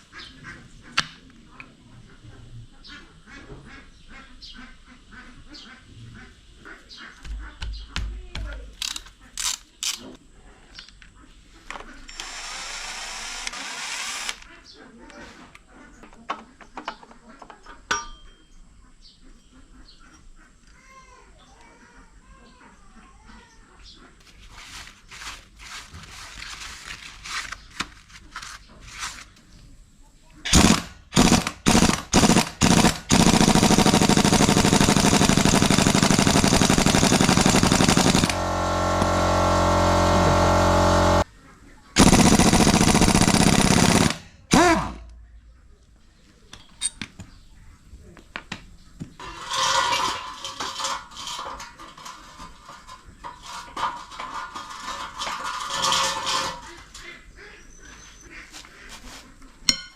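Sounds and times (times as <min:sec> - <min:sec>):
impact wrench hammering: 0:32.2 - 0:41.2.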